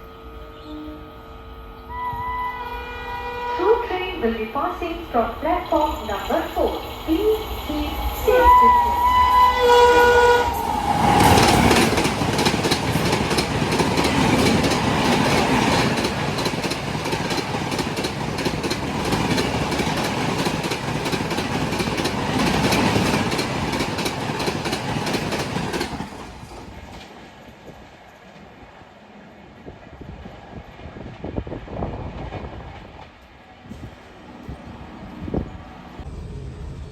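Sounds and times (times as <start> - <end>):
train wheels clattering: 10.4 - 27.4.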